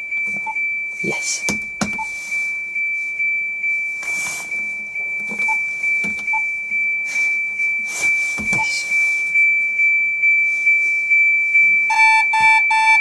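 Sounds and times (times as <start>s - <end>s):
high-pitched pulsing beeper tone: 0.0s - 13.0s
short lower electronic beeps: 0.2s - 2.4s, 4.0s - 9.0s, 11.9s - 13.0s.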